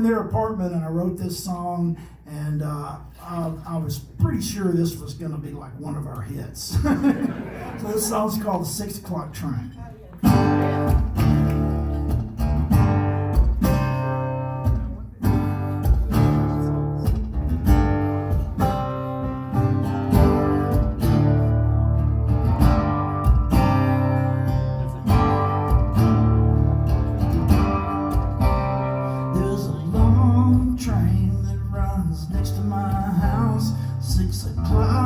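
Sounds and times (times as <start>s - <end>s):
acoustic guitar strumming: 10.2s - 35.0s.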